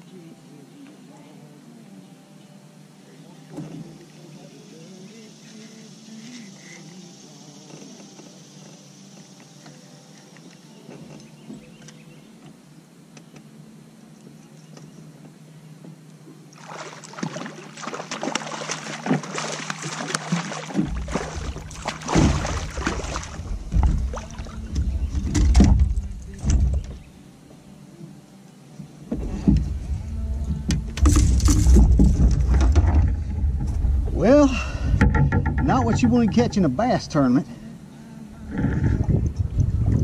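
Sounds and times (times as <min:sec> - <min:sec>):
fish splashing at water surface: 0:16.6 - 0:26.6
heavy low thumps: 0:20.8 - 0:27.0, 0:29.2 - 0:37.0, 0:38.4 - 0:40.0.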